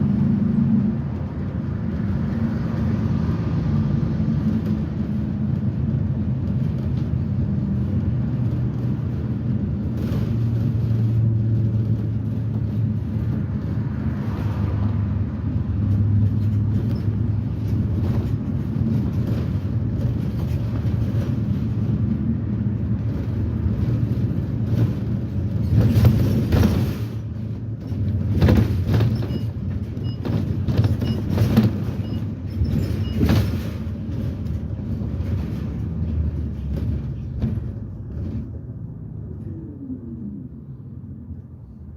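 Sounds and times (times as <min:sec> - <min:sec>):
bus engine low hum: 0:00.0 - 0:41.9
road noise: 0:00.0 - 0:41.9
knocks and rattles: 0:15.4 - 0:38.8.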